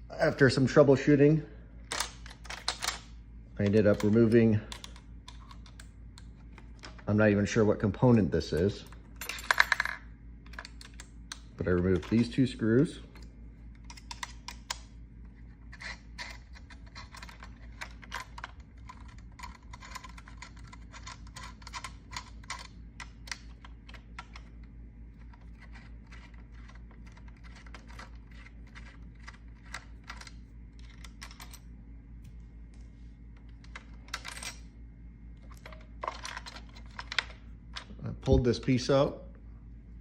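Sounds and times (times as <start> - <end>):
low hum: 0.0 - 40.0
screwdriver and parts clicking: 13.1 - 14.9, 15.7 - 24.6, 35.4 - 38.4.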